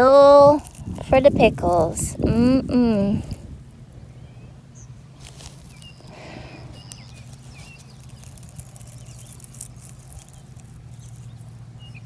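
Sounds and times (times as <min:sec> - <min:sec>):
close rustling and scratching: 0:00.0 - 0:03.6, 0:05.0 - 0:12.0
bird chirps: 0:04.0 - 0:12.0.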